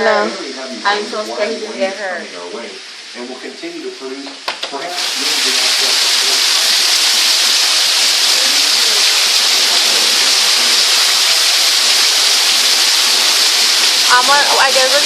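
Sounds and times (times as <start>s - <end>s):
heavy rain and hail: 5.0s - 15.0s.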